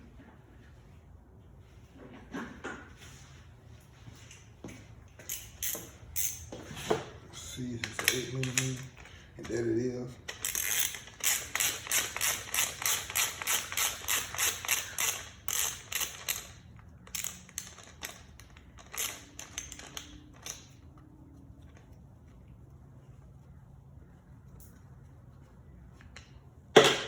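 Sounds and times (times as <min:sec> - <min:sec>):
socket ratchet clicking: 0:10.3 - 0:20.7.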